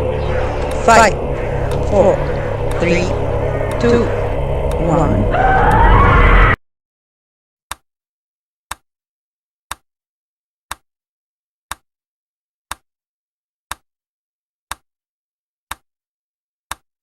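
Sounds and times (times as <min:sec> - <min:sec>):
clock-like timer ticks: 0:00.6 - 0:05.8, 0:12.7 - 0:12.9, 0:13.7 - 0:13.9.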